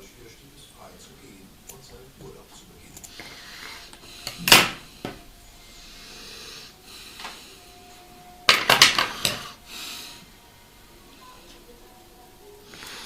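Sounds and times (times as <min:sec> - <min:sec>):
hard objects knocking: 0:08.5 - 0:09.5.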